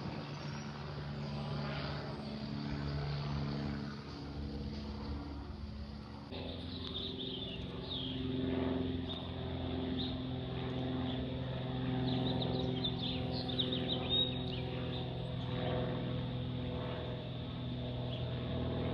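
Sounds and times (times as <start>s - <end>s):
steady engine drone: 0.0s - 18.9s
birds chirping: 6.4s - 15.7s.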